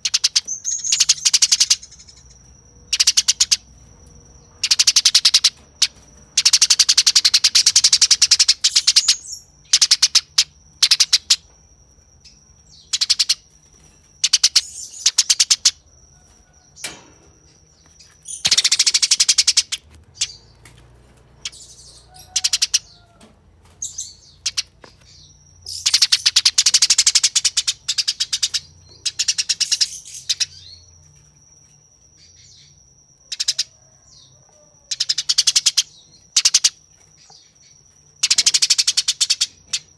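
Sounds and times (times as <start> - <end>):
sparrows chattering: 0.0 - 39.9.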